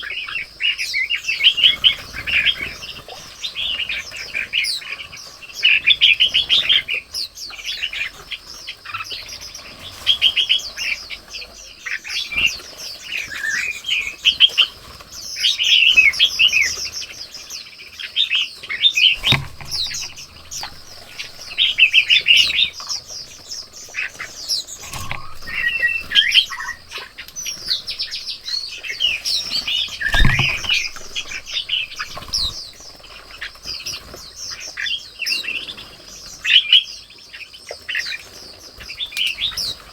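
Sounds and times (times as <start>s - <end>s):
small birds chirping: 0.0s - 39.9s
low thumps: 19.2s - 23.8s, 24.8s - 28.9s, 30.0s - 33.0s.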